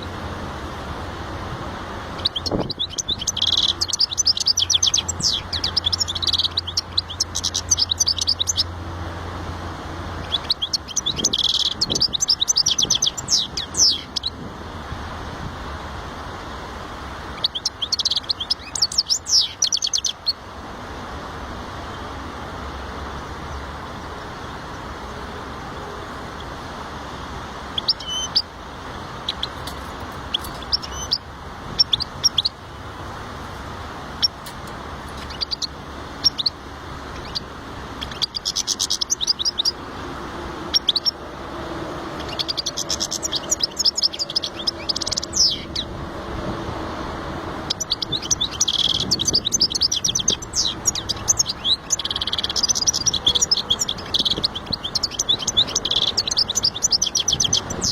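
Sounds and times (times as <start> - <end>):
goldfinch chirping and twittering: 2.0 - 8.8, 10.1 - 14.4, 17.3 - 20.4, 27.7 - 28.5, 29.2 - 32.6, 34.2 - 39.8, 40.6 - 41.2, 42.1 - 46.0, 47.6 - 57.9.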